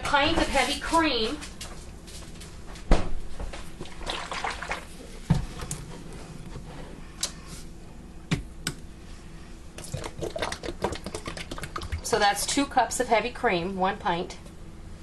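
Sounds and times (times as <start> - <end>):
cream pouring into bowl: 9.8 - 12.1.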